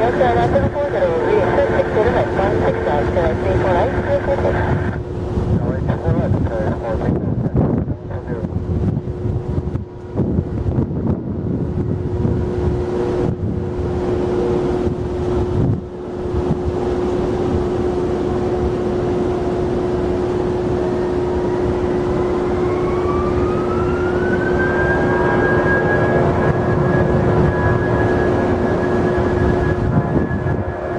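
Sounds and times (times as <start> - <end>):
jet engines whining and rumbling: 0.0 - 30.9
jet engine spooling up: 16.4 - 30.9.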